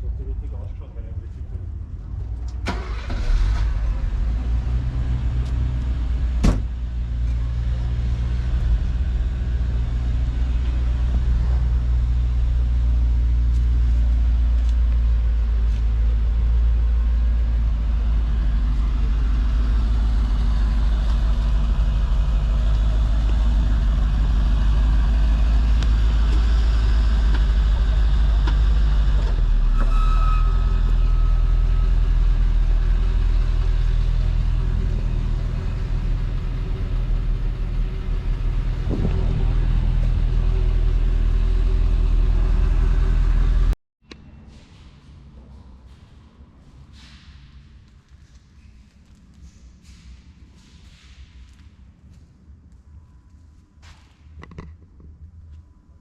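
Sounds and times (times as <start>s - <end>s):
car engine idling: 2.2s - 29.2s, 31.8s - 43.8s.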